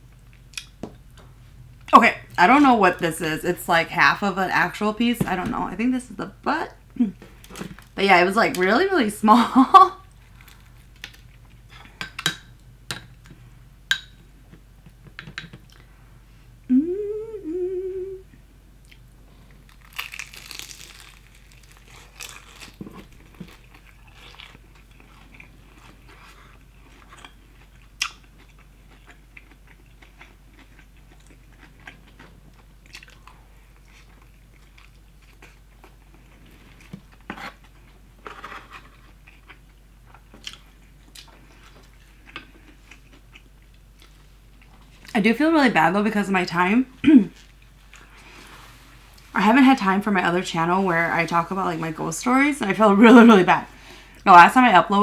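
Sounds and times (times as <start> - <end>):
person humming mmm: 16.6 - 18.4
crunching fried chicken: 19.4 - 45.2
wet chewing: 19.7 - 36.0.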